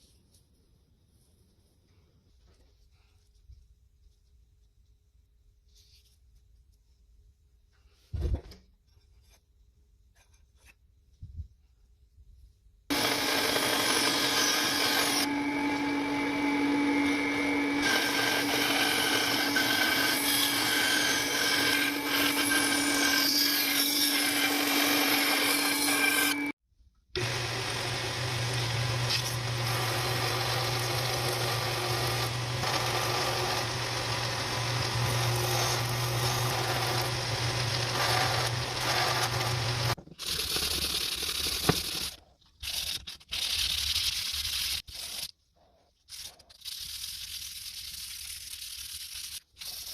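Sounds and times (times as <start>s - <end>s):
power tool motor humming: 12.9s - 26.5s, 27.2s - 40.0s.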